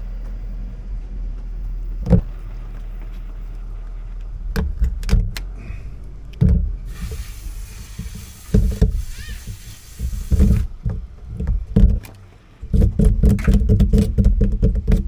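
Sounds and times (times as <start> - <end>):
wind rumbling on microphone: 0.0 - 15.0
sharp knocks and thumps: 1.4 - 2.7, 4.4 - 5.5, 6.3 - 15.0
steady hiss: 5.6 - 10.9.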